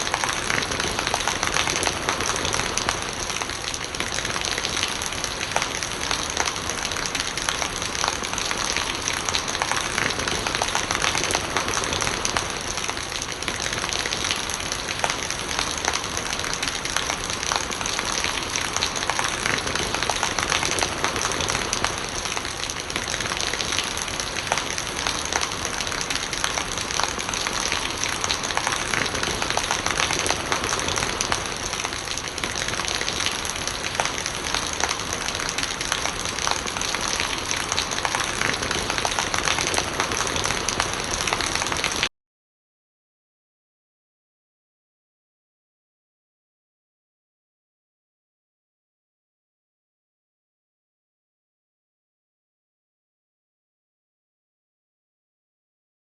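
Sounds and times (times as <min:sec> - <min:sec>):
rain pattering: 0:00.0 - 0:42.1
rainwater gurgling: 0:00.0 - 0:42.1.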